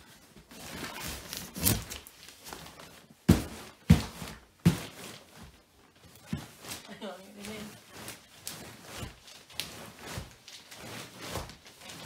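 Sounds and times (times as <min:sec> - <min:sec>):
mattress scuffing: 0:00.2 - 0:12.0
mattress thumping: 0:03.3 - 0:05.6.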